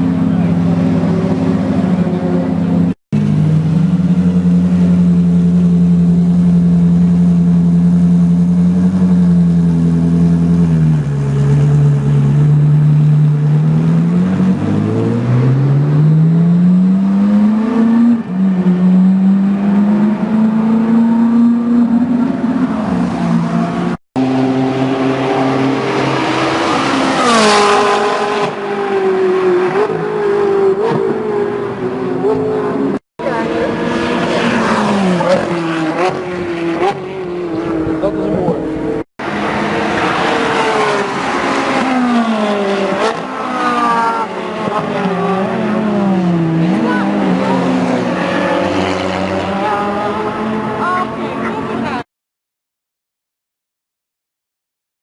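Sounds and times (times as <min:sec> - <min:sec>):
race car engine running hard: 0:00.0 - 0:14.8.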